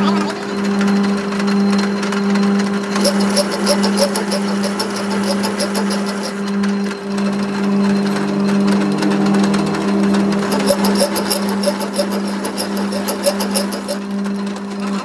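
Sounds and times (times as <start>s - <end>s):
electric motor humming: 0.0s - 15.0s
tool clicking and rattling: 3.0s - 6.7s, 8.6s - 14.2s.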